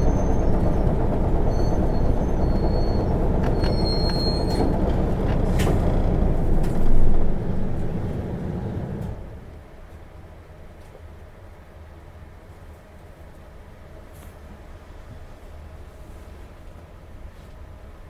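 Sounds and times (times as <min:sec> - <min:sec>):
thin high squeals: 0:00.0 - 0:06.0
bus drive rumble: 0:00.0 - 0:10.1.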